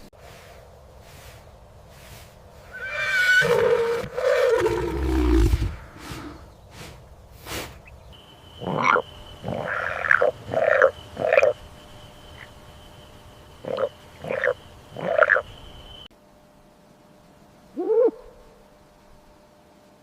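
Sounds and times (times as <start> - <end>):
animal calls: 8.6 - 11.6, 13.6 - 15.5.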